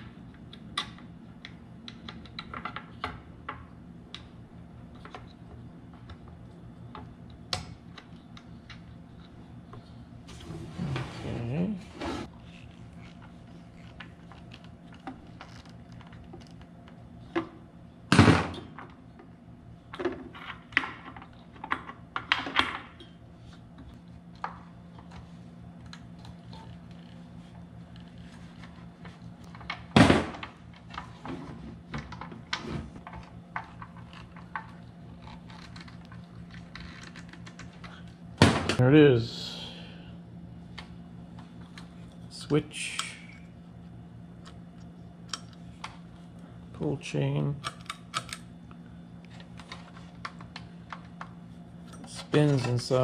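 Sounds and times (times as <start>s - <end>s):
steady low hum: 0.0s - 53.0s
fan parts clunking and clicking: 49.3s - 53.0s.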